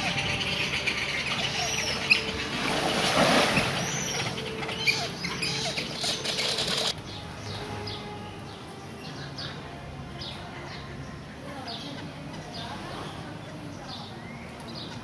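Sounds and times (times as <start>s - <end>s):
shorebirds calling: 0.0s - 9.6s
scattered clicks: 6.2s - 7.0s.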